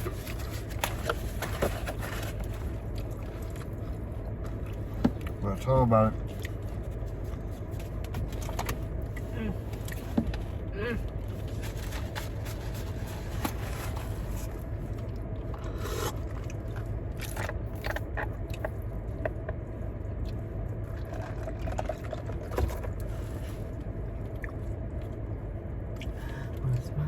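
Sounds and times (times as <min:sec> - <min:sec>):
scrapes and rustles: 0:00.0 - 0:02.9, 0:11.3 - 0:14.6
crunching and chewing food: 0:00.0 - 0:26.8
steady low hum: 0:00.0 - 0:27.0.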